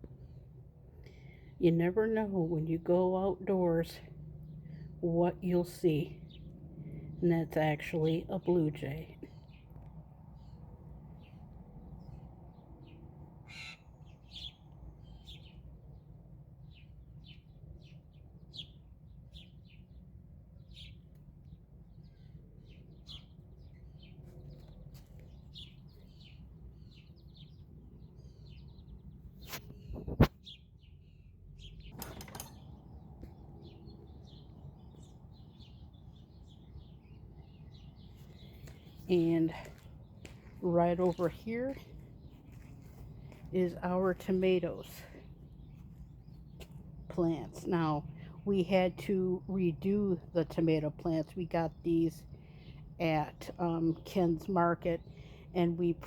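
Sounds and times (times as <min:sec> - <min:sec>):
birds chirping: 0:03.2 - 0:56.0
steady low rumble: 0:19.8 - 0:53.0.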